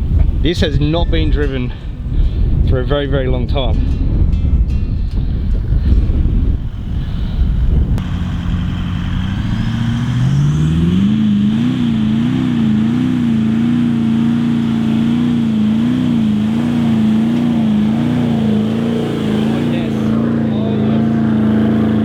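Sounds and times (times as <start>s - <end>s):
car engine revving: 8.0s - 22.0s.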